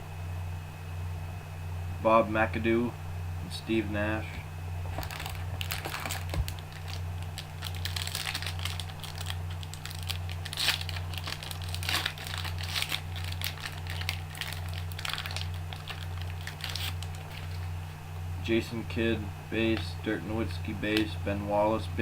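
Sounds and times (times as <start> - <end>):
steady low hum: 0.0 - 22.0
plastic wrapping crinkling: 4.8 - 17.9.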